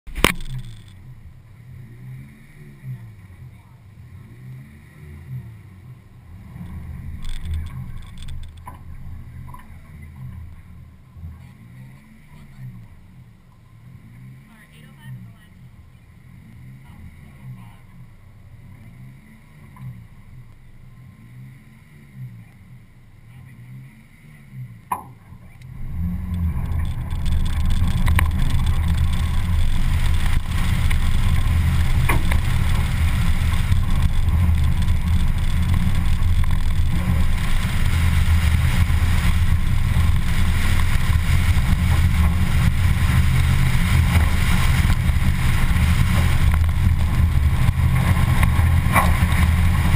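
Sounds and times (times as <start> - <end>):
car engine idling: 0.0 - 49.9
car engine revving hard: 0.1 - 49.9
wind rushing over microphone: 25.7 - 49.9.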